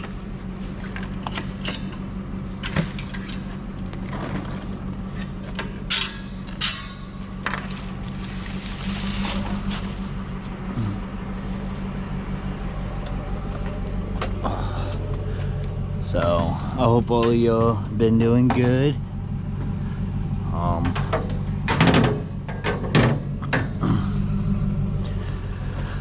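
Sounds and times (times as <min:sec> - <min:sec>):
vehicle engine humming: 0:00.0 - 0:26.0
loud metal clanks: 0:05.6 - 0:07.8.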